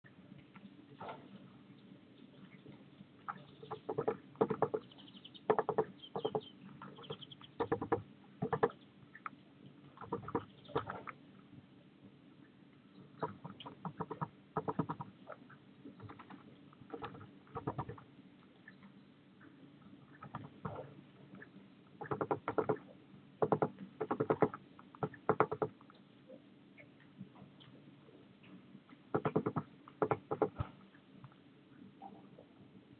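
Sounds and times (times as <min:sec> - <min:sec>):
faint high bird chirps: 0:01.7 - 0:07.8, 0:18.6 - 0:20.3
bird tapping and scratching: 0:03.3 - 0:08.8, 0:10.0 - 0:11.2, 0:13.2 - 0:15.1, 0:15.9 - 0:18.1, 0:20.1 - 0:20.9, 0:22.0 - 0:26.0, 0:29.1 - 0:30.8.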